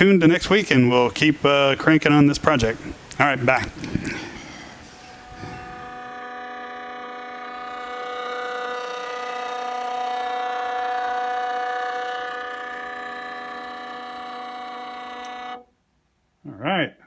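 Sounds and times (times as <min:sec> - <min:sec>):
stepper motors whining: 0:03.7 - 0:15.6.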